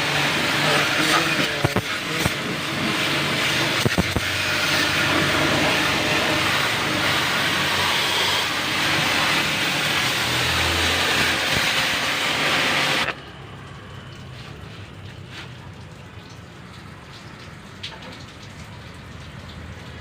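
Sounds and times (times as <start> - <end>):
pressure washer jet hissing: 0.0 - 13.2
low motor hum: 0.0 - 20.0.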